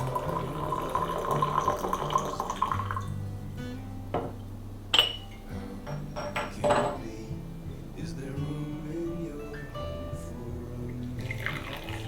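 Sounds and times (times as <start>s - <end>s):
water running: 0.0s - 3.2s, 10.9s - 12.0s
dishes clinking: 4.1s - 7.2s.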